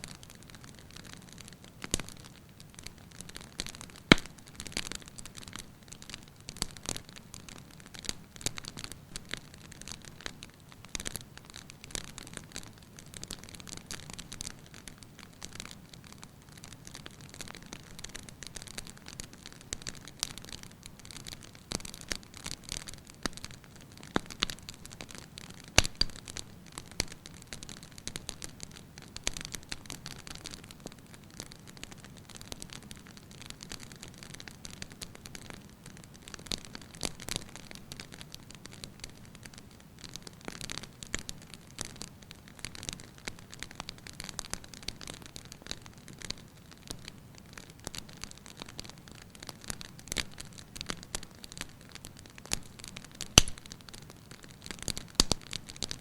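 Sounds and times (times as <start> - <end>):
firewood crackling and popping: 0.0 - 56.0
fire hissing: 53.4 - 53.6.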